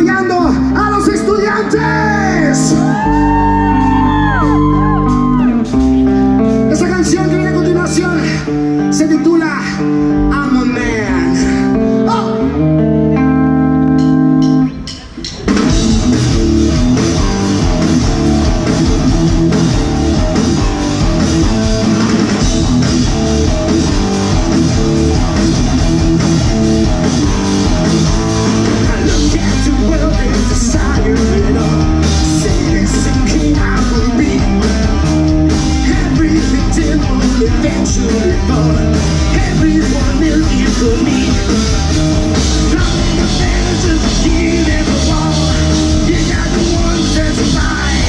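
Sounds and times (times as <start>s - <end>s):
live rock band playing: 0.0s - 48.0s
drums and cymbals: 14.4s - 48.0s.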